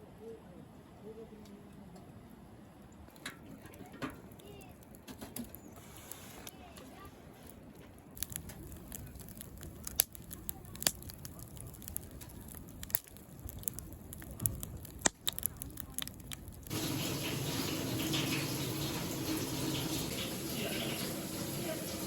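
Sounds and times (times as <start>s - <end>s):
burning wood popping: 3.1s - 22.0s
wood fire crackling: 3.1s - 22.0s.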